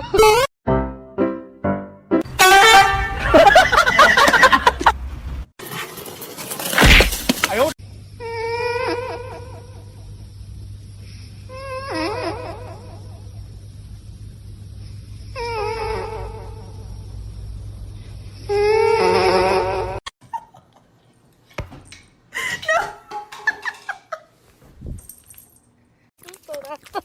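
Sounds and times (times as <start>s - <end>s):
steady low hum: 9.2s - 18.7s.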